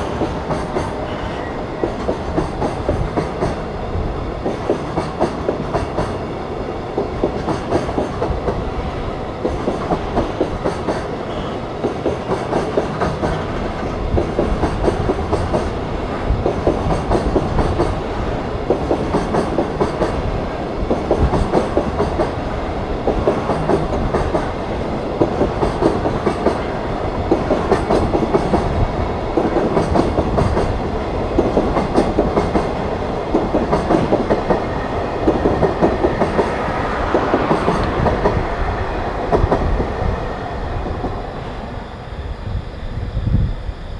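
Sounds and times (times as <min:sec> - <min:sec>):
train wheels clickety-clack: 0:00.0 - 0:41.4
continuous train rumble: 0:00.0 - 0:43.9.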